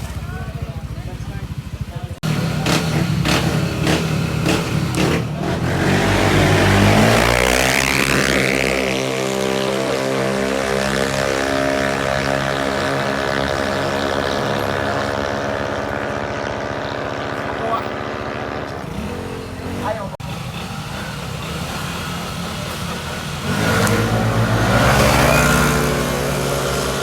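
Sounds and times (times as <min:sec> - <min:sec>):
scooter engines revving: 0:00.0 - 0:27.0.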